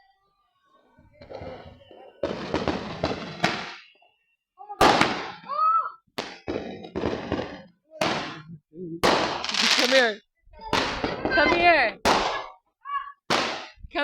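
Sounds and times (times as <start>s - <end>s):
fireworks sharp bangs: 1.2s - 4.0s, 4.7s - 12.6s, 13.2s - 14.0s
fireworks crackling bursts: 1.3s - 4.0s, 4.6s - 5.6s, 6.2s - 12.6s, 13.2s - 14.0s.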